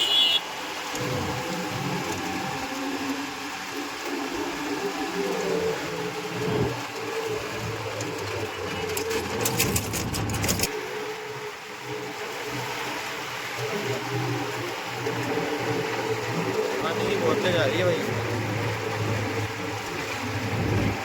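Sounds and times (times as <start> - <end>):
tractor engine running: 3.7 - 10.8
rattling clicks: 7.6 - 10.7.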